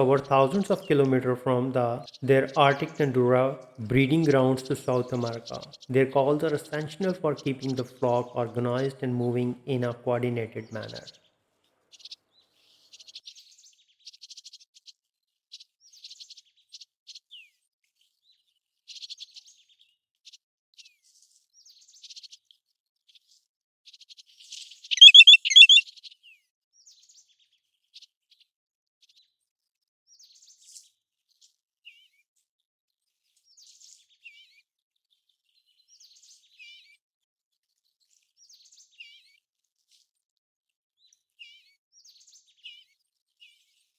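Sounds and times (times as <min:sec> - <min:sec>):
bird chirping high notes: 0:24.9 - 0:25.8.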